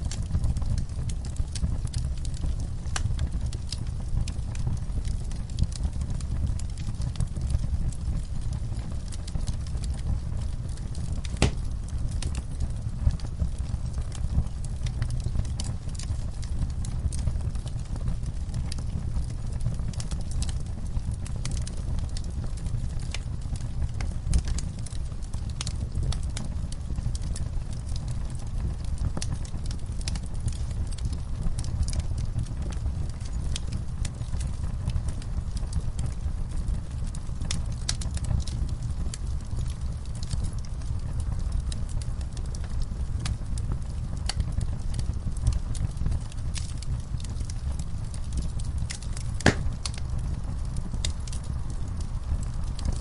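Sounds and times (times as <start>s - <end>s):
low flame noise: 0.0s - 53.0s
wood fire crackling: 0.0s - 53.0s
sharp pop of burning wood: 11.3s - 11.8s, 49.4s - 50.1s.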